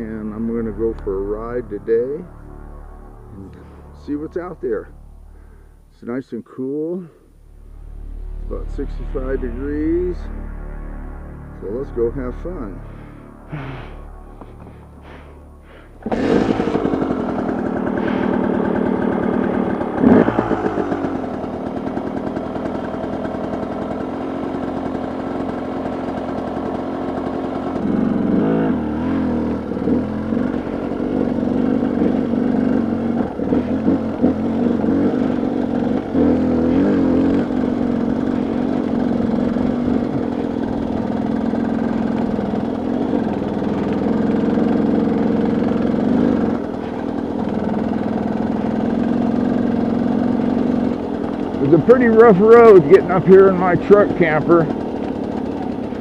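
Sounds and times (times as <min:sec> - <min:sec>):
pickup truck engine running: 0:11.6 - 0:56.0.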